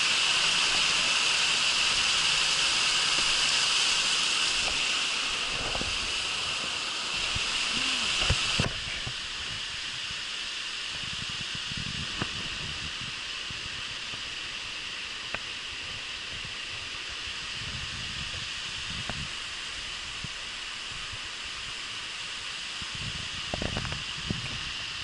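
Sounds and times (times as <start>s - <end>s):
waterfall rushing: 0.0s - 11.3s.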